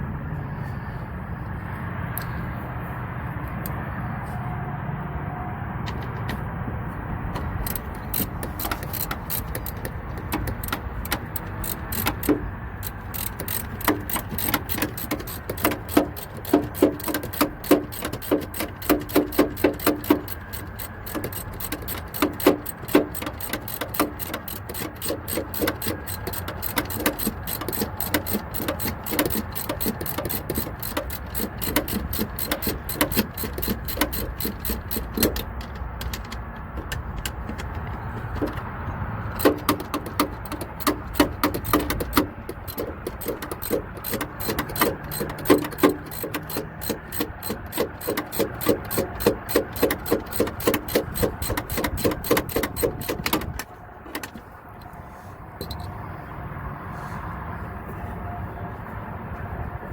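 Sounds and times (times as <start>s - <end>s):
ratchet wrench clicking: 7.4s - 54.9s, 55.6s - 55.9s
metal tool clicks: 7.4s - 55.0s, 55.6s - 55.9s.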